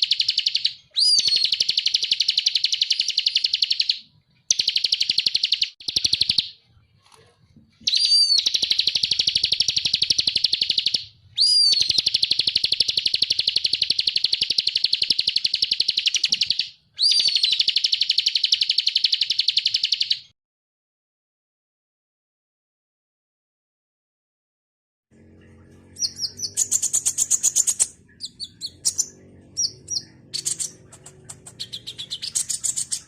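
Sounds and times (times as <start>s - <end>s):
bird rattling trills: 26.0s - 33.0s.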